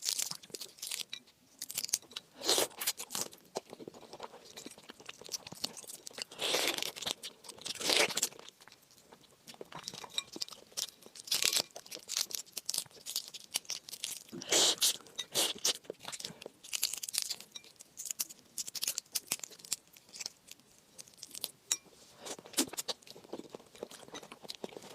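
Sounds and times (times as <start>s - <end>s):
crunching bites: 10.4s - 21.5s.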